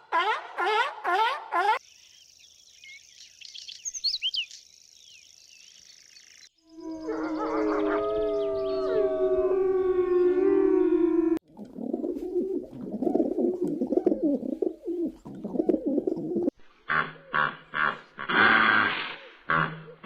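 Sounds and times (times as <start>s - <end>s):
pigeon cooing: 10.4s - 16.5s.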